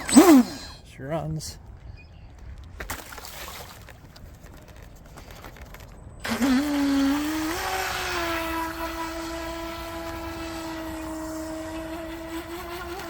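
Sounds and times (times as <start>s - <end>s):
electric motor whining: 0.0s - 0.8s, 6.2s - 13.0s.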